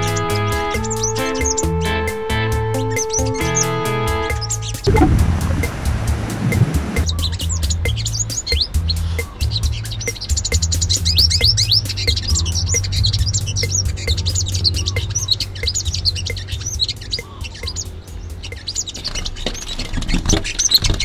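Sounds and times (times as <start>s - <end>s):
background music with a beat: 0.0s - 19.1s
small bird chirping: 7.0s - 21.0s.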